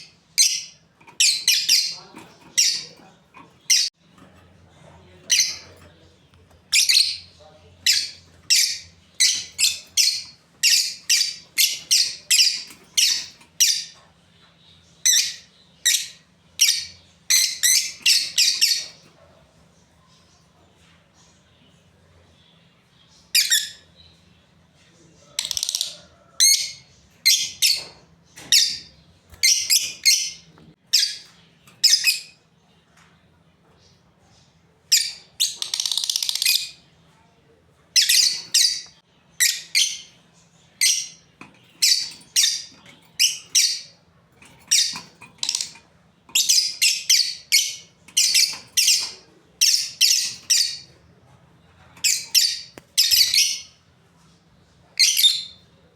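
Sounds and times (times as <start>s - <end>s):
lovebirds shrill chirping: 0.0s - 14.0s, 14.7s - 19.0s, 38.0s - 51.0s, 51.8s - 53.8s.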